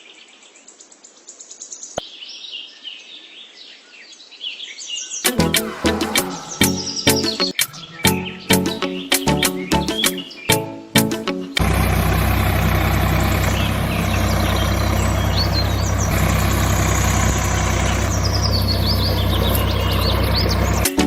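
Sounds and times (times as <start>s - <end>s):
birds chirping: 5.1s - 10.8s, 11.5s - 21.0s
engine running: 11.6s - 21.0s.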